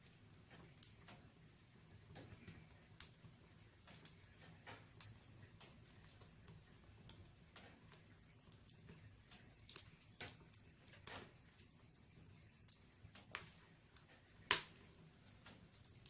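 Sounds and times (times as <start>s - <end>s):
firewood crackling: 0.0s - 16.0s
sharp pops of fire: 7.1s - 11.5s, 12.6s - 16.0s.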